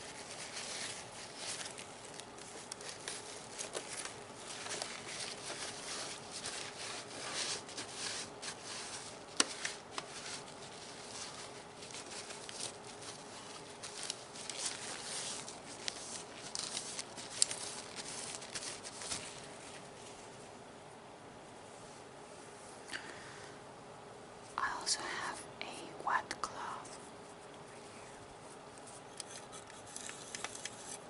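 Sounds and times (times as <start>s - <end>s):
plastic being wiped and rubbed: 0.0s - 20.5s, 28.2s - 31.0s.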